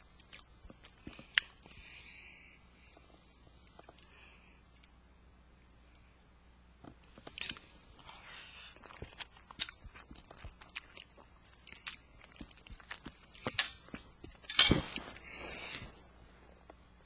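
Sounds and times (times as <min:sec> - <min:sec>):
chewing food: 0:00.0 - 0:02.0, 0:06.8 - 0:14.5.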